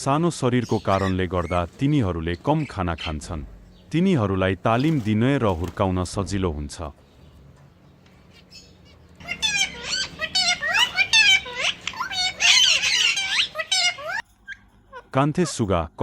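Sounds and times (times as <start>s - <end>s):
budgerigars chattering: 0.0s - 5.8s, 8.2s - 14.2s.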